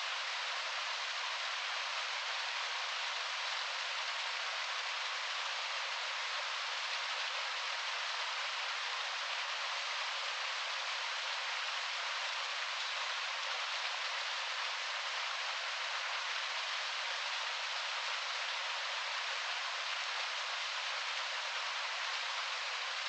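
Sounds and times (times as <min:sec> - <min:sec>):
heavy rain on a window: 0:00.0 - 0:23.0.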